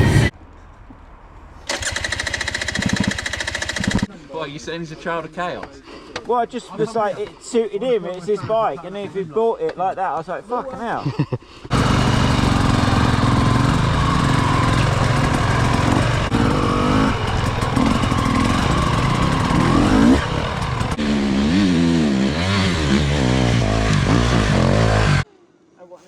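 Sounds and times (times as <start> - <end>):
motocross bike engine revving: 1.7 - 4.1, 11.7 - 25.2.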